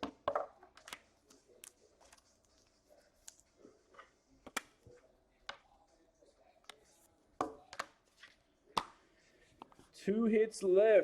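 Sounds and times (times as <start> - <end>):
cards clicking and tapping on table: 0.0 - 1.1.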